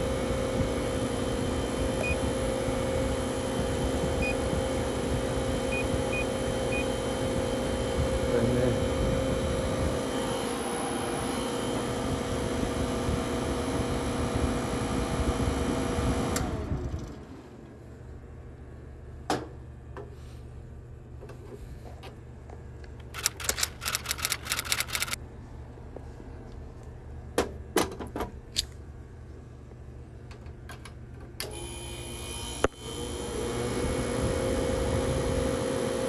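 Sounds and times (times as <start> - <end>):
fan winding down: 0.0 - 17.8, 23.0 - 25.2, 31.4 - 36.0
refrigeration compressor and fan running: 0.0 - 36.0
sharp click: 23.0 - 25.2.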